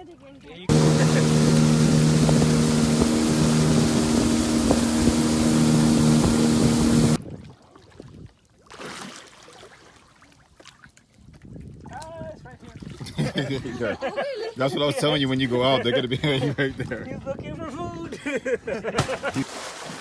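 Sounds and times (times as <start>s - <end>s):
motorboat engine drone: 0.7s - 7.2s
wind on microphone: 0.7s - 8.3s, 11.2s - 13.4s.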